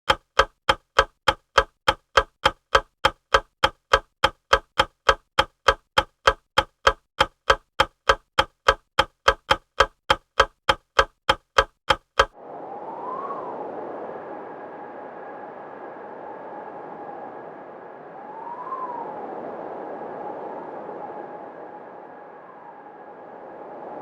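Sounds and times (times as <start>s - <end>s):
clock-like ticking: 0.0s - 12.4s.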